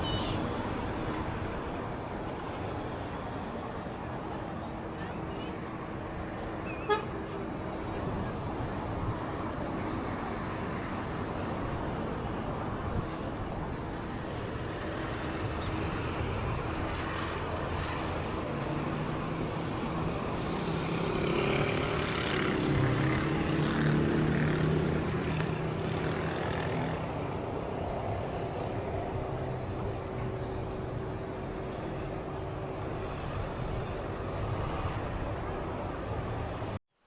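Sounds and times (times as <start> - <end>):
outdoor traffic noise: 0.0 - 37.0
motor engine passing by: 20.4 - 24.8.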